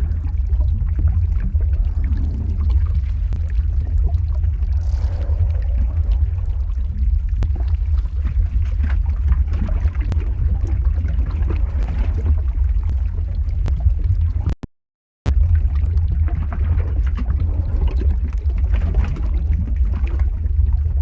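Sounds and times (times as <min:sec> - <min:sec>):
steady deep rumble: 0:00.0 - 0:14.6, 0:15.3 - 0:21.0
sharp crackles: 0:01.8 - 0:13.0.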